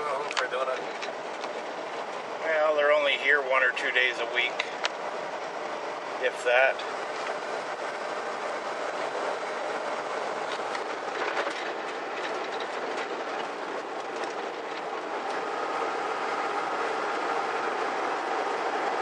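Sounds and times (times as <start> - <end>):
steady whine: 0.0 - 19.0
vehicle rumbling on dirt road: 0.0 - 19.0
ticks and rattles: 0.3 - 2.3, 8.9 - 15.8.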